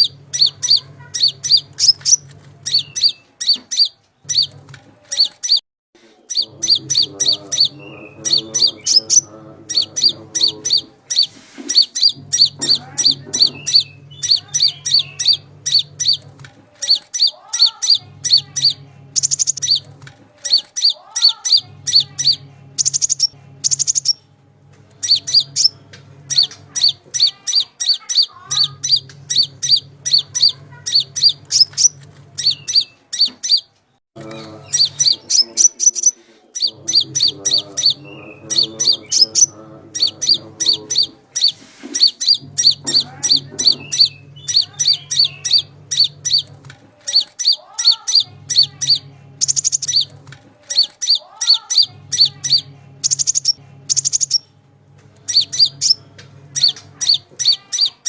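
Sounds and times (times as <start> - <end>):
songbird chirping: 0.0 - 58.0
low hum: 6.4 - 33.5, 36.6 - 47.3, 51.8 - 58.0.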